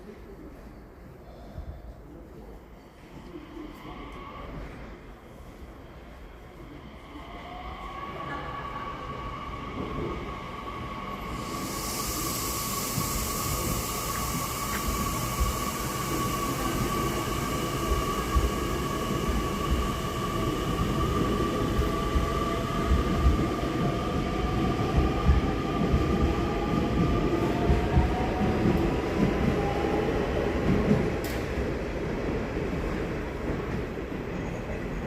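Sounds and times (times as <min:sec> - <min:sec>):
electric train whine: 0:07.3 - 0:30.4
hiss: 0:11.2 - 0:26.0.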